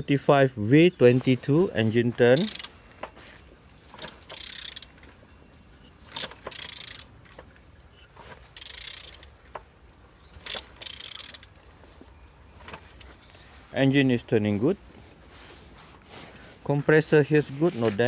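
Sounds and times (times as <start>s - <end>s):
ratchet wrench clicking: 2.3s - 2.7s, 4.0s - 4.9s, 6.0s - 7.1s, 8.6s - 9.3s, 10.4s - 11.5s.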